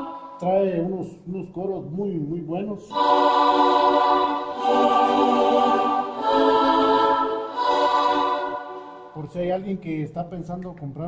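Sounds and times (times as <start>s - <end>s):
synthesizer choir chords: 0.0s - 1.0s, 2.8s - 9.4s.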